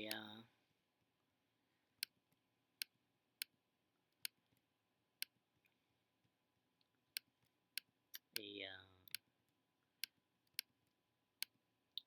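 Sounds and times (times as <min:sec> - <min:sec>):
computer mouse clicking: 0:04.2 - 0:04.6.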